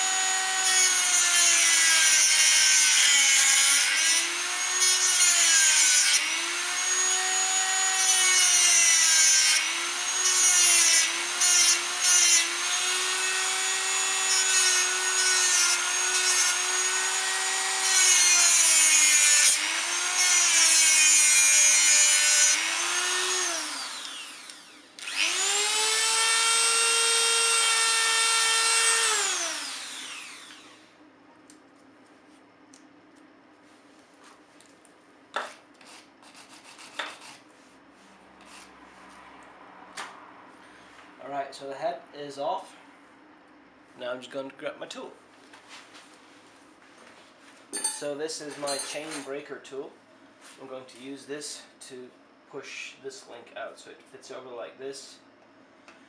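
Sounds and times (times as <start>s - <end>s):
rotary tool grinding metal: 0.0s - 30.8s.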